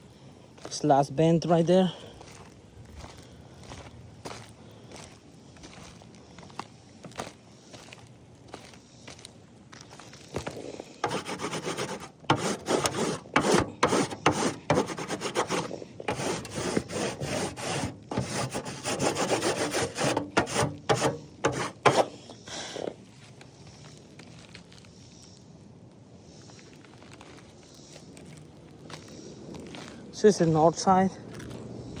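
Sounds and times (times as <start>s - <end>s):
rough scraping and rubbing: 10.3s - 23.0s.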